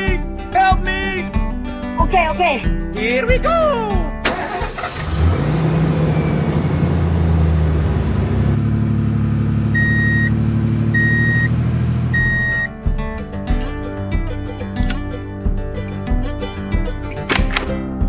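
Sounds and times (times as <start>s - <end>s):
truck engine running: 4.3s - 12.4s.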